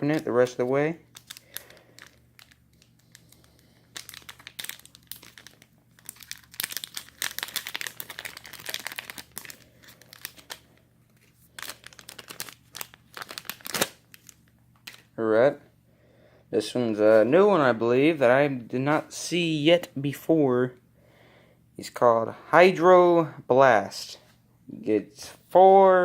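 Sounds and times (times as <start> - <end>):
plastic wrapper crinkling: 0.0 - 15.2.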